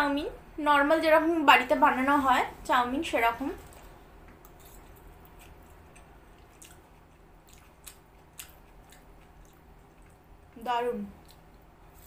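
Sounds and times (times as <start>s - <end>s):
faint chewing of noodles: 3.6s - 12.0s.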